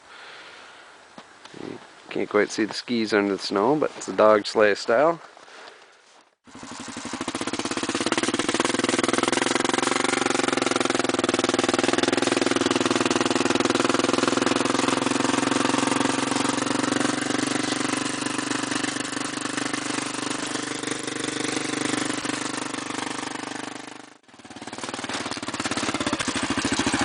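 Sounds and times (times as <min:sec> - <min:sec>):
atv engine running: 0:06.4 - 0:27.0.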